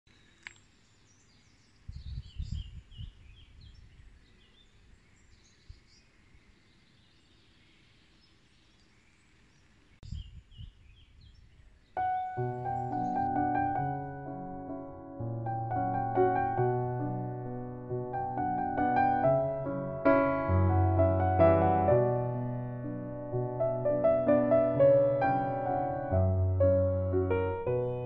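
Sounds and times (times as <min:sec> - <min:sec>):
small birds chirping: 0:00.1 - 0:15.0
piano music: 0:12.0 - 0:28.0.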